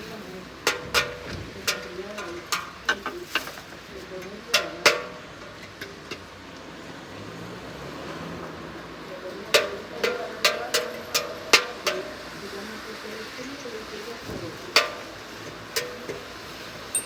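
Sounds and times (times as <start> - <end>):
rain hiss: 6.0 - 17.0.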